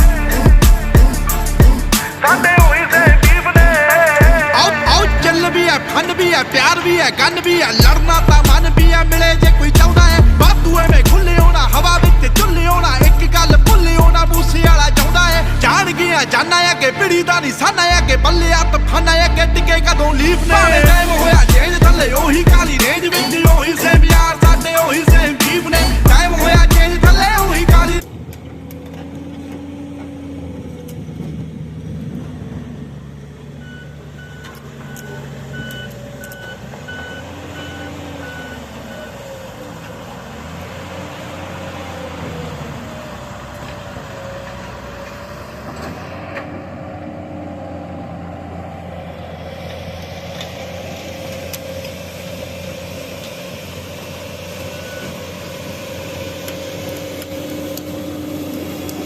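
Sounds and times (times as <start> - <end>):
excavator diesel engine: 0.0 - 59.0
reversing alarm beeps: 33.6 - 39.2, 54.6 - 55.3.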